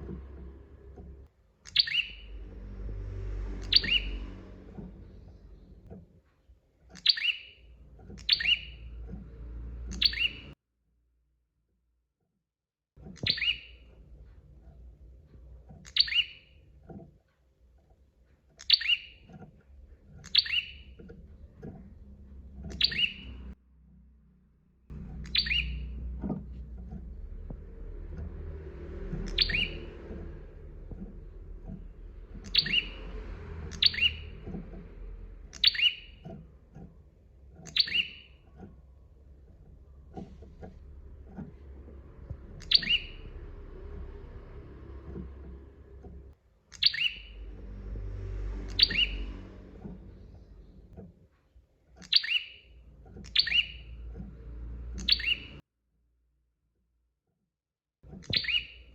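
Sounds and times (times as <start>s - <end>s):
faint low rumble: 0.0s - 6.3s, 18.9s - 51.0s.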